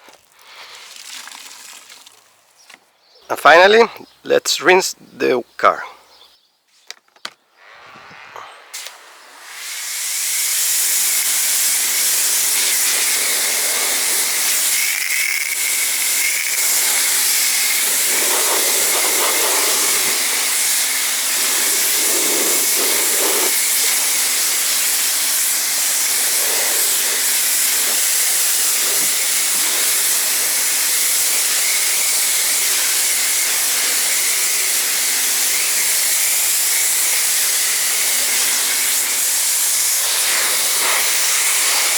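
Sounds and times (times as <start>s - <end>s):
pressure washer spraying water: 8.7s - 41.9s.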